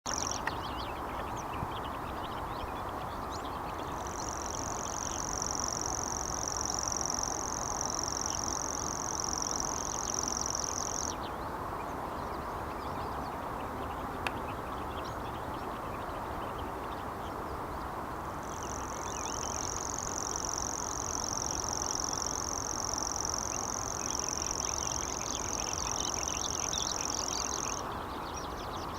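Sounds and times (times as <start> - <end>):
cricket trilling: 0.1 - 0.5, 4.0 - 11.2, 18.4 - 27.9
steady background noise: 0.1 - 28.9.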